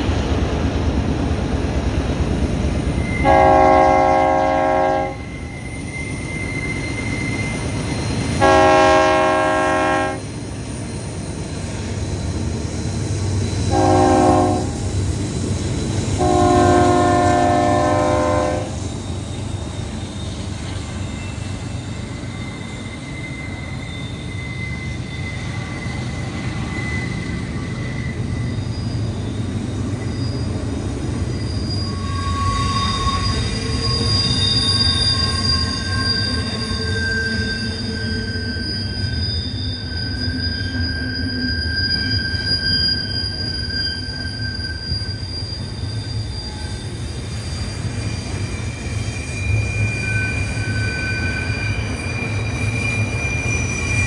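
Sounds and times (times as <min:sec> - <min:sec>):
train rumbling: 0:00.0 - 0:54.0
train wheels squealing: 0:00.0 - 0:54.0
locomotive horn blasts: 0:03.2 - 0:05.3, 0:08.4 - 0:10.2, 0:13.7 - 0:14.8, 0:16.2 - 0:18.8.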